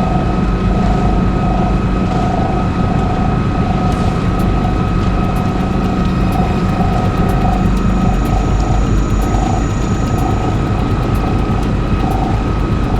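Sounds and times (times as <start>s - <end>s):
boat engine running: 3.9s - 12.9s.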